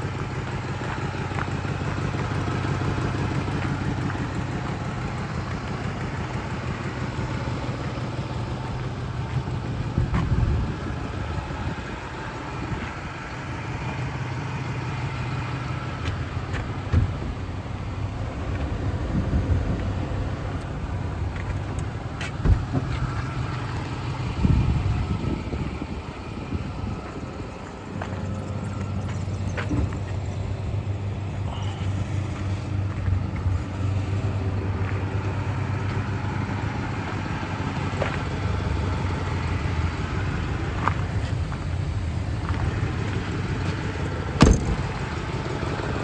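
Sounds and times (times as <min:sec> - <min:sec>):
pickup truck idling: 0:00.0 - 0:46.0
sharp knocks and thumps: 0:44.4 - 0:45.1.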